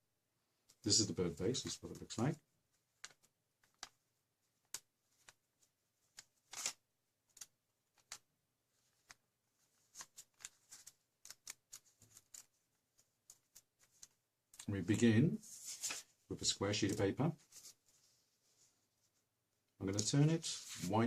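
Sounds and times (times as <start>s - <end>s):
paper rustling and crackling: 4.6s - 14.7s, 15.5s - 18.0s, 19.8s - 21.0s.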